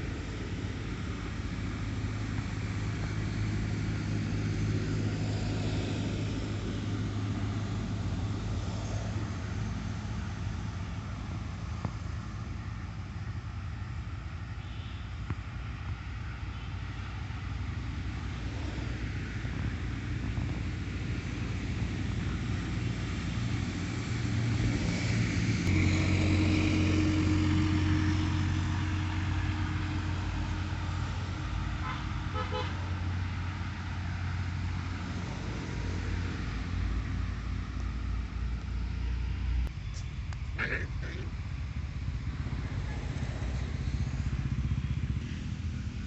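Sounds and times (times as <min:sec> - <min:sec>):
vehicle engine rumbling: 0:00.0 - 0:46.0
vehicle horn tooting: 0:31.8 - 0:32.8.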